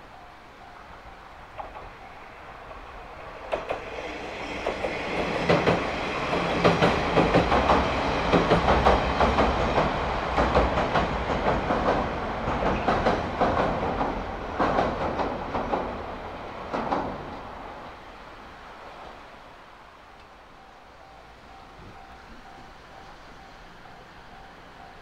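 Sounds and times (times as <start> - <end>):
railcar wheels clacking on rails: 0.1 - 17.8.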